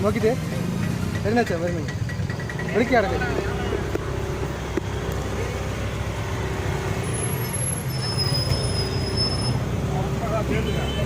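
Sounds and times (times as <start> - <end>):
faint high whistle: 7.4 - 9.6.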